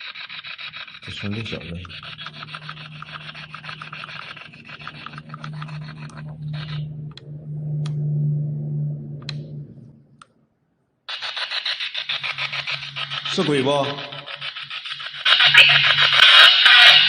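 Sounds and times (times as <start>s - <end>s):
steady low hum: 0.9s - 11.1s
radio static chatter: 1.0s - 7.1s, 11.1s - 17.0s.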